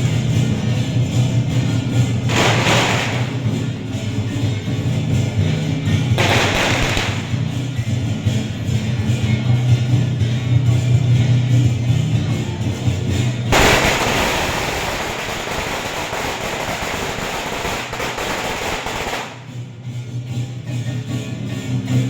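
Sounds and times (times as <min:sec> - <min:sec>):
music with low drone: 0:00.0 - 0:22.0
firecrackers crackling: 0:02.2 - 0:04.4, 0:06.1 - 0:07.7, 0:13.5 - 0:19.6.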